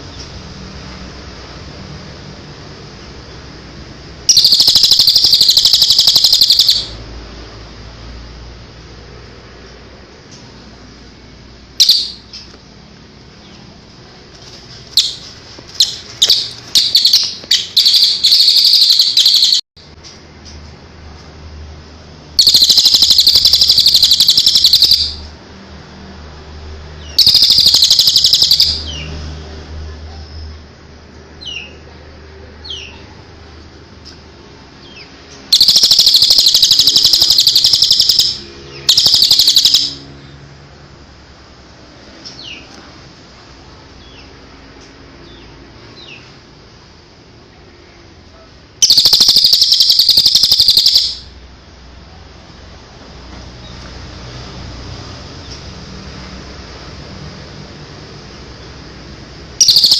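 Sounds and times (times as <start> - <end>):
songbird chirps and trills: 4.3 - 7.0, 14.7 - 19.6, 22.4 - 25.3, 27.0 - 29.2, 34.8 - 40.1, 48.8 - 51.3, 59.6 - 59.9.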